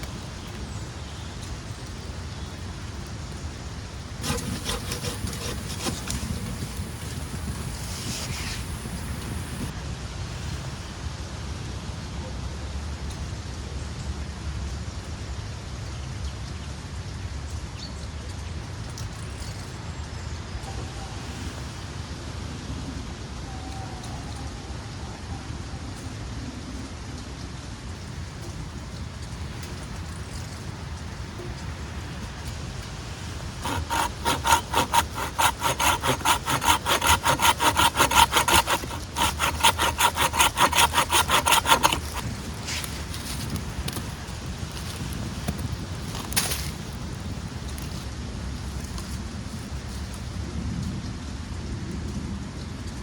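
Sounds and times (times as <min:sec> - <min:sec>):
hand saw cutting wood: 0:04.2 - 0:09.7, 0:33.2 - 0:44.1.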